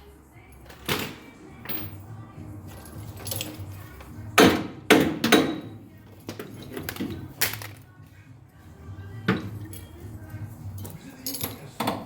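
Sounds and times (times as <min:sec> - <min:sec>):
tools clanking on metal: 0:02.8 - 0:03.8, 0:04.4 - 0:07.8, 0:10.7 - 0:12.0.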